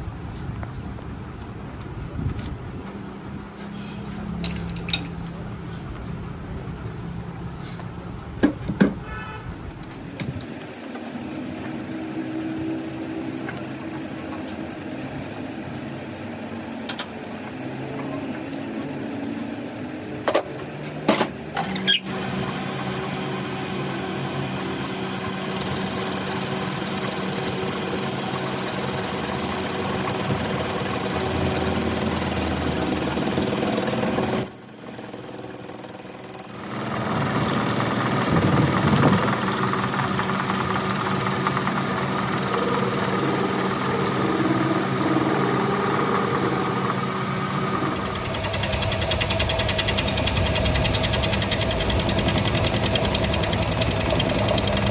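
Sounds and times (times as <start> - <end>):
power tool running: 21.2 - 54.9.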